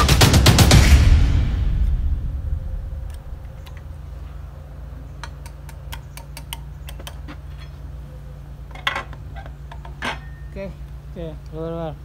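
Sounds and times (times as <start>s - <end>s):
music: 0.0s - 3.5s
low steady hum: 0.1s - 12.0s.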